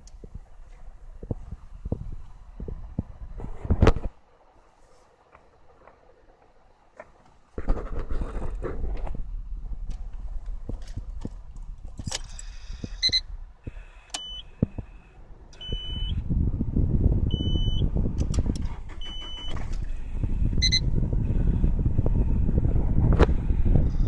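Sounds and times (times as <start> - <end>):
car engine and road noise: 0.0 - 24.0
short high electronic beeps: 13.0 - 13.2, 20.6 - 20.8.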